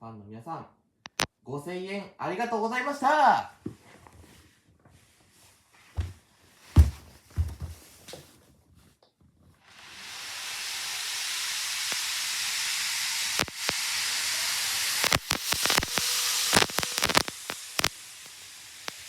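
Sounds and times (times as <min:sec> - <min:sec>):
sharp clicks: 0:01.1 - 0:01.3, 0:13.3 - 0:13.9, 0:14.9 - 0:18.0
steady hiss: 0:09.6 - 0:19.0.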